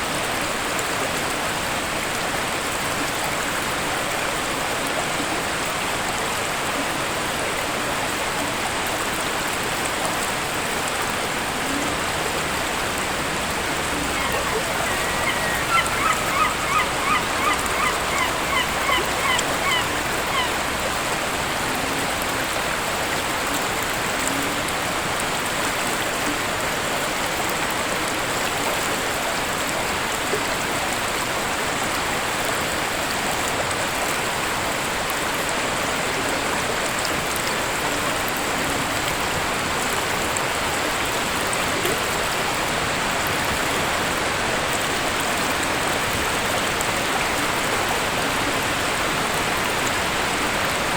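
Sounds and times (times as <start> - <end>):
waterfall rushing: 2.6 - 32.0
bird calling short notes: 14.0 - 20.6.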